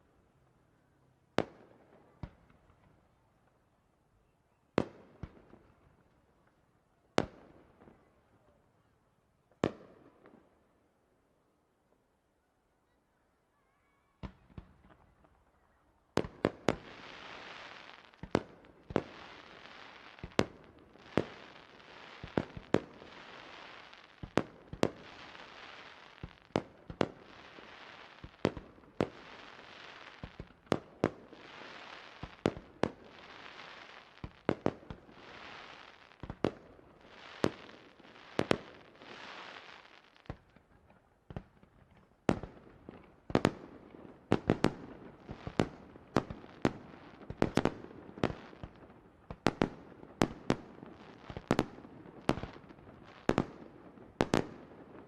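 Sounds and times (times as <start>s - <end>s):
fireworks crackling hiss: 16.4s - 40.2s.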